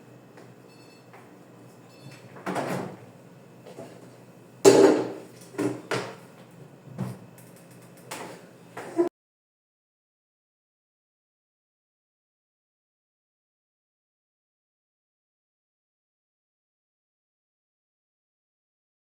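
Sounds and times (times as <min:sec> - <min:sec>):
household knocks and clatters: 0:04.7 - 0:06.2.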